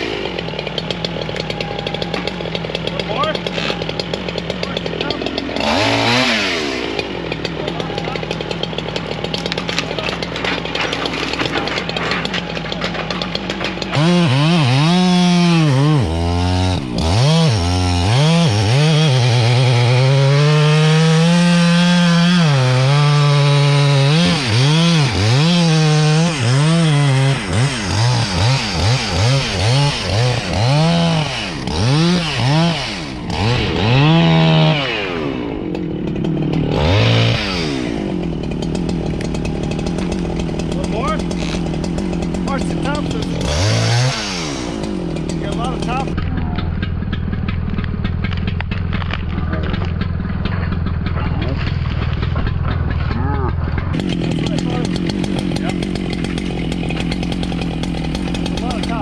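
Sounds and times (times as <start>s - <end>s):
chainsaw cutting wood: 0.0s - 59.0s
chainsaw idling and revving: 0.0s - 59.0s.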